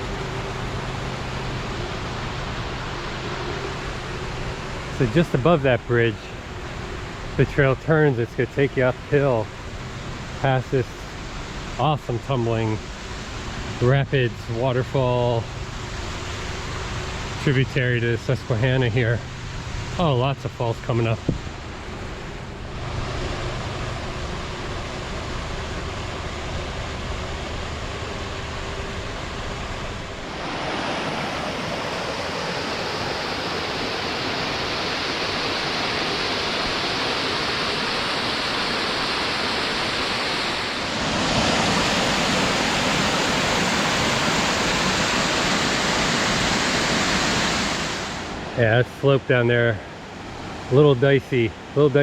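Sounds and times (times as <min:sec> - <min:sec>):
creek rapids rushing: 0:00.0 - 0:52.0.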